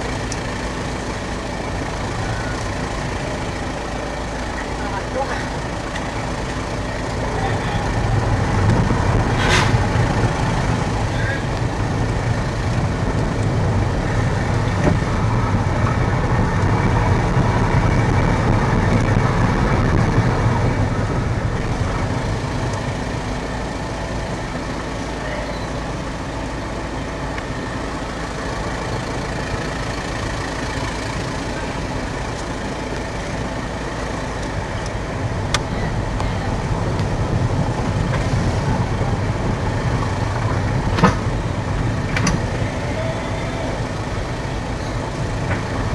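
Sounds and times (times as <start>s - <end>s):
car engine and road rumble: 0.0s - 45.9s.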